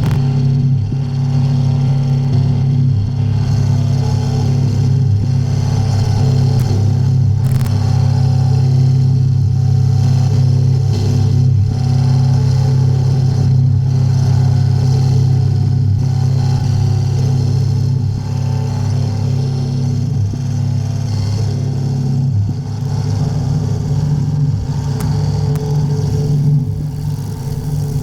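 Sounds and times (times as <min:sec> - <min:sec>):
harsh grinding drone: 0:00.0 - 0:28.0.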